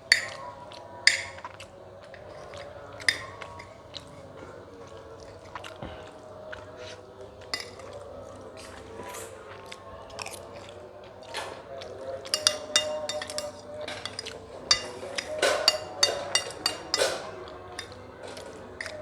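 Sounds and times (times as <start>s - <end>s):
clinks against a plate: 0.0s - 4.2s, 7.4s - 8.9s, 11.4s - 19.0s
chewing and crunching: 0.0s - 19.0s.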